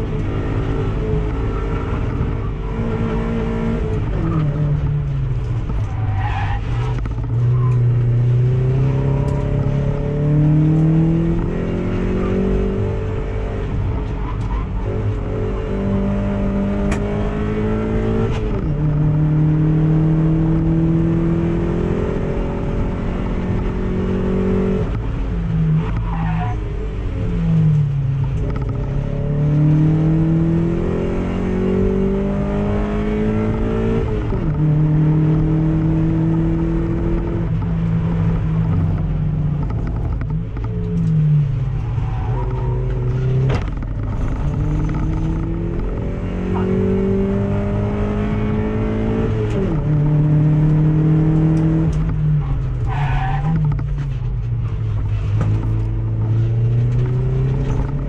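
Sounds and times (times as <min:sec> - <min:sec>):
car engine accelerating in cabin: 0:00.0 - 0:05.9, 0:06.6 - 0:26.1, 0:26.8 - 0:58.0.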